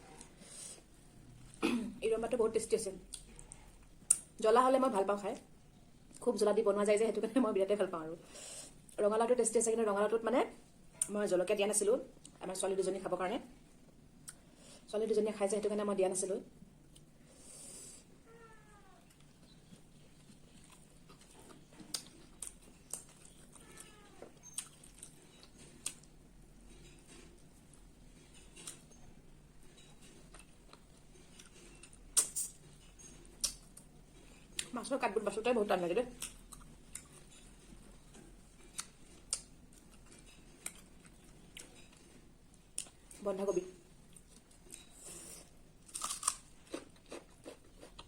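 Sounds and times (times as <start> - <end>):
faint eating sounds: 0.0 - 48.0
cat meowing: 18.2 - 19.1, 23.5 - 24.4.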